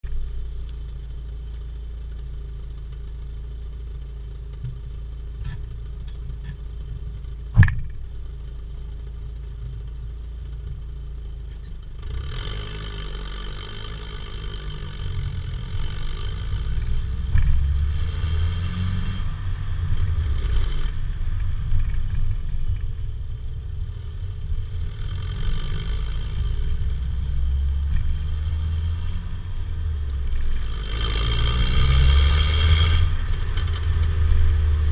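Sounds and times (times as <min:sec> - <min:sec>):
car exhaust idle rumble: 0:00.0 - 0:31.0
sharp knock: 0:07.6 - 0:08.0.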